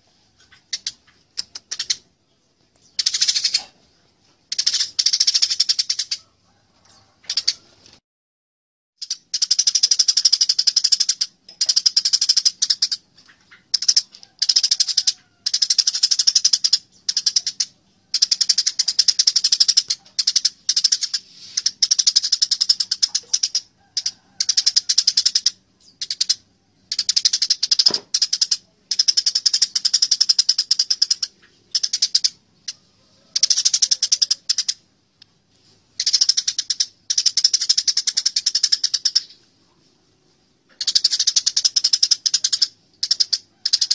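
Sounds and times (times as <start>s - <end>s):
sparrows chirping harshly: 0.4s - 6.2s, 40.4s - 43.9s.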